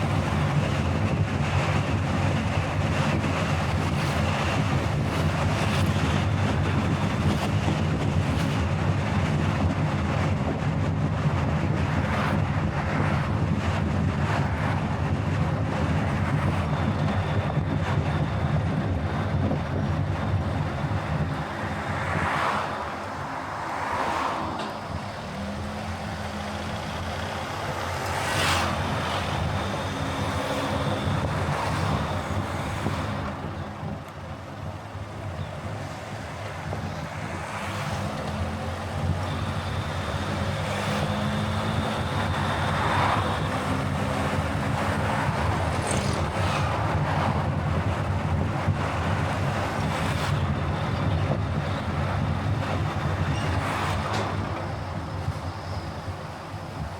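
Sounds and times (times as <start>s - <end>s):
road tyre and engine noise: 0.0s - 56.9s
wind: 0.0s - 56.9s
rushing noise: 12.3s - 56.9s.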